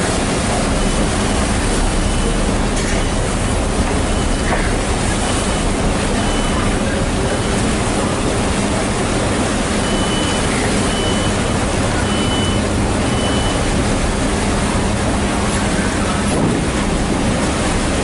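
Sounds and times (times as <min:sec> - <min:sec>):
engine rumble with low hum: 0:00.0 - 0:18.0
loud wind: 0:13.8 - 0:18.0.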